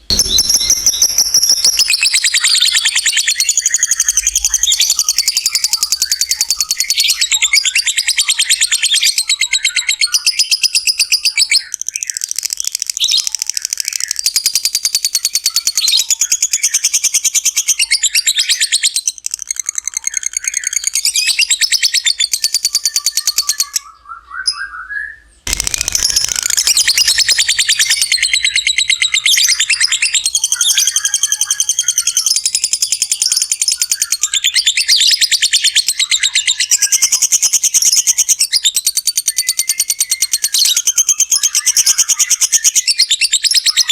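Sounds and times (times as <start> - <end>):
bird chattering trill: 0.0 - 7.7, 25.5 - 38.4.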